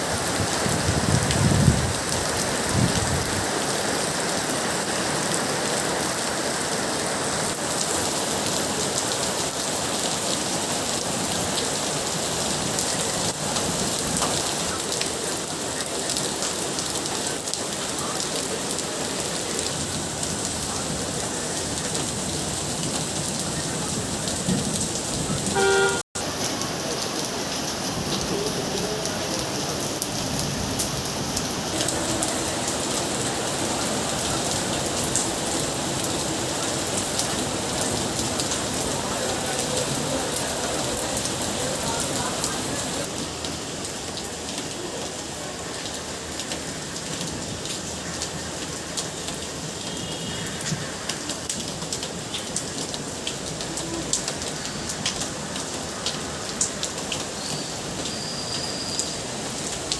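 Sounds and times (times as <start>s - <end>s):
rain falling on surfaces: 0.0s - 59.9s
short pitched tone: 25.5s - 26.1s.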